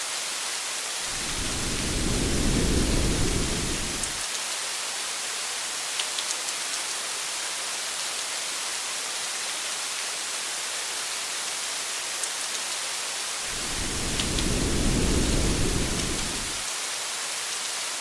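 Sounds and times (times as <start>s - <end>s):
steady rain hiss: 0.9s - 4.3s, 13.4s - 16.9s.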